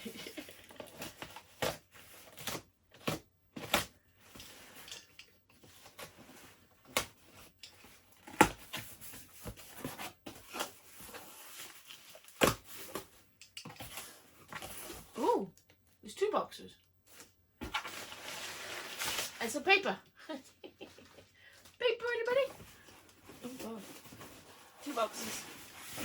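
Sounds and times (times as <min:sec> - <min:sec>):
cardboard box scraping and rustling: 0:17.6 - 0:19.4, 0:23.2 - 0:26.0.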